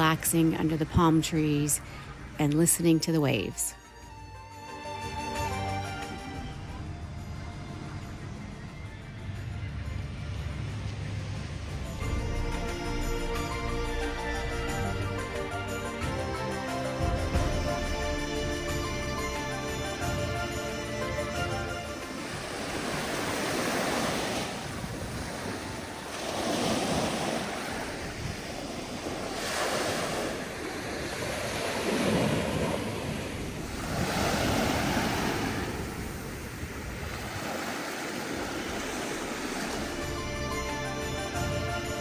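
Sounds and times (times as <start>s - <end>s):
waves breaking on beach: 12.6s - 42.0s.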